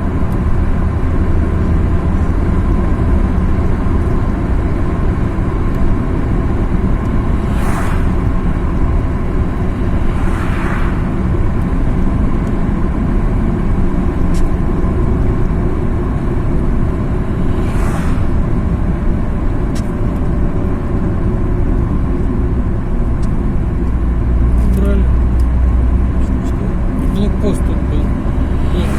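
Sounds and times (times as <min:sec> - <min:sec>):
car engine and road noise: 0:00.0 - 0:28.9
brief whooshes: 0:07.1 - 0:08.9, 0:09.7 - 0:11.3, 0:17.3 - 0:18.7, 0:28.4 - 0:28.9.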